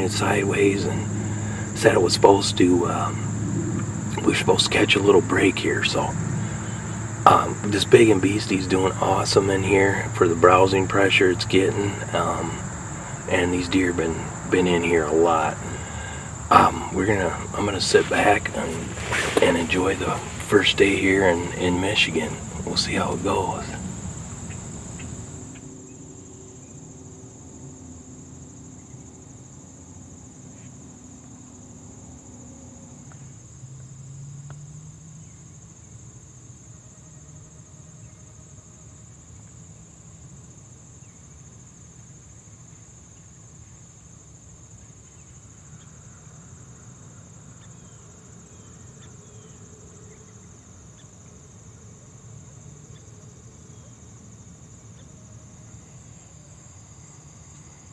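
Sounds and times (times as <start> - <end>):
high-pitched insect chorus: 0.0 - 34.1.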